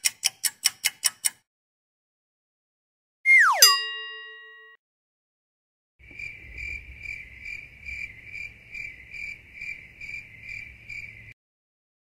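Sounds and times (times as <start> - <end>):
cricket chirping: 6.0 - 11.4.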